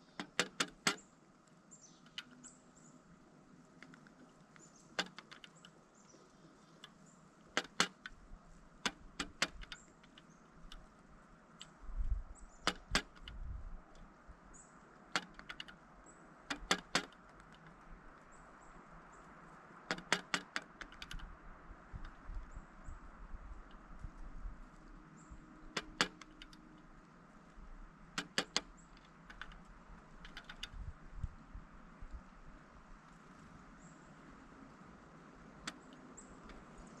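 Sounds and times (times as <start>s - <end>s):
woodpecker tapping: 3.7s - 31.4s.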